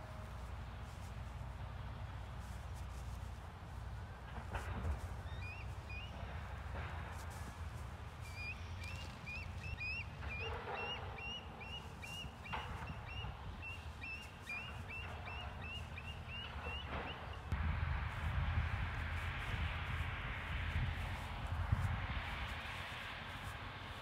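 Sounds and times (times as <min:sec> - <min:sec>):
wind rumble on microphone: 0:00.0 - 0:24.0
bird chirping: 0:05.2 - 0:06.2, 0:08.3 - 0:17.5.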